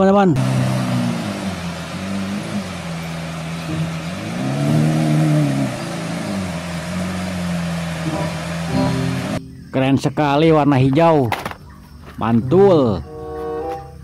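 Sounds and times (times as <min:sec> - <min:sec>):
engine throttle blip: 0:00.4 - 0:09.6
car engine idling: 0:00.4 - 0:09.7.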